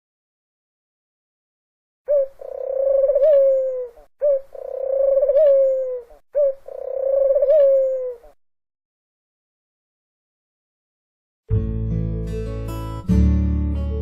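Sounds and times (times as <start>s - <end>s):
dove cooing: 2.1s - 8.4s.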